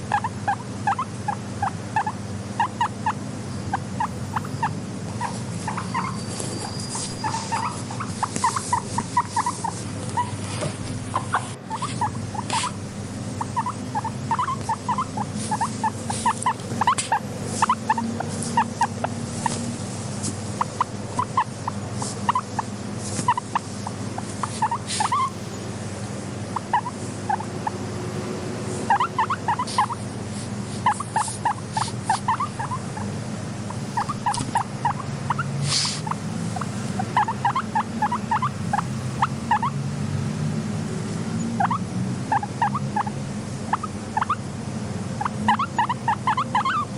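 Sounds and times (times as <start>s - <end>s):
guinea pig squeaky chirps: 0.0s - 25.6s, 26.4s - 27.8s, 28.8s - 39.8s, 41.3s - 44.5s, 45.1s - 46.9s
steady low hum: 0.0s - 46.9s.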